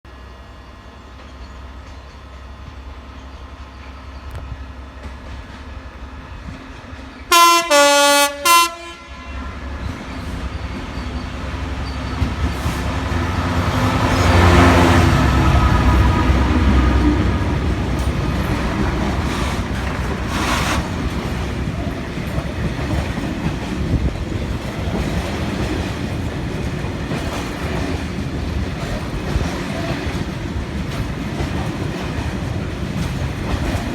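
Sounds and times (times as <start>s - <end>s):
diesel locomotive engine passing: 0.1s - 33.9s
locomotive horn blasts: 7.3s - 9.9s
freight wagons rattling on rails: 15.4s - 33.9s.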